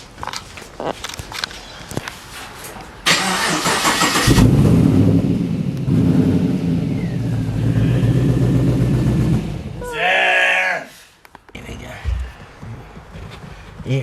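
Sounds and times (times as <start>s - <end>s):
starter motor cranking: 3.1s - 4.5s
car engine idling: 3.1s - 9.8s.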